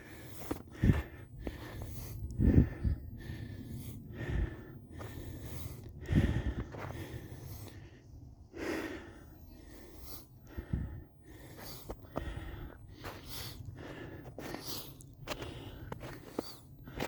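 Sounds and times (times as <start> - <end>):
person breathing: 0.0 - 17.0
footsteps crunching in snow: 11.4 - 17.0.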